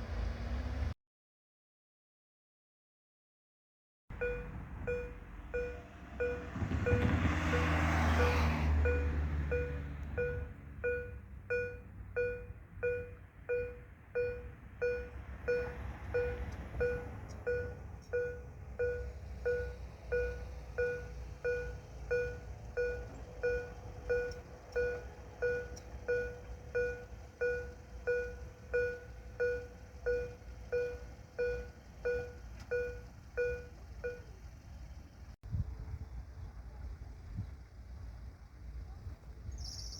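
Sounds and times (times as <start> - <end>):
train rumble: 4.2 - 11.0.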